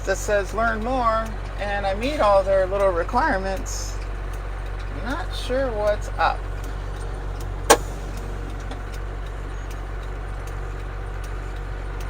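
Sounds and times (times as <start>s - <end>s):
diesel engine running: 0.0s - 12.0s
sharp click: 7.7s - 8.8s.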